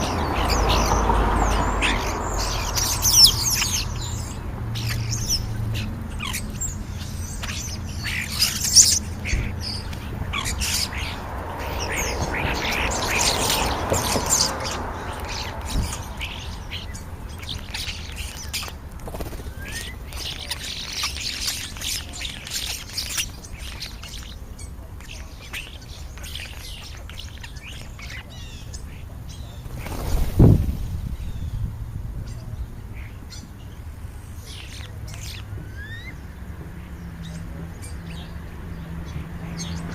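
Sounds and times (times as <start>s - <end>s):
passing rush of noise: 0.0s - 18.1s, 29.5s - 32.6s
starlings chirping and squawking: 0.0s - 39.9s.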